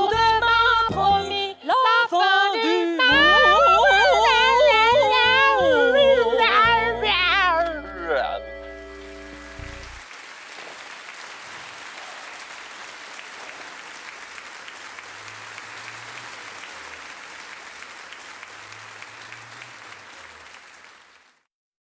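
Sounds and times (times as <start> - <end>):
audience applauding: 8.8 - 21.5.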